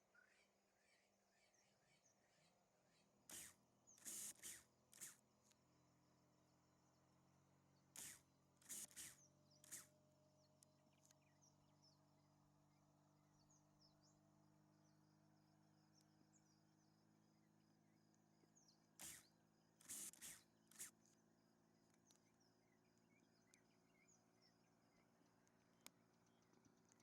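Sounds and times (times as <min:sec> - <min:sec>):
short bursts of noise: 0:03.3 - 0:05.2, 0:08.0 - 0:09.9, 0:19.0 - 0:21.0
small high chirps: 0:03.3 - 0:05.2, 0:08.0 - 0:09.9, 0:19.0 - 0:21.2.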